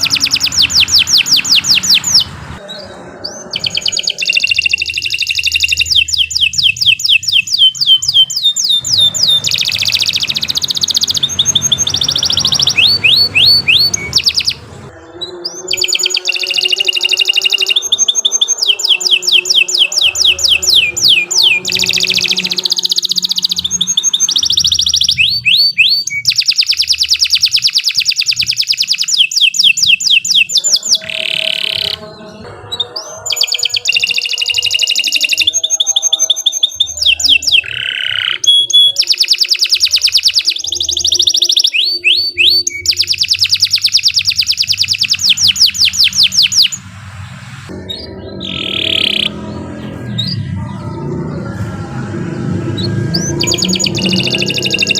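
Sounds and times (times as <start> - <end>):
canary singing trills: 0.0 - 54.9.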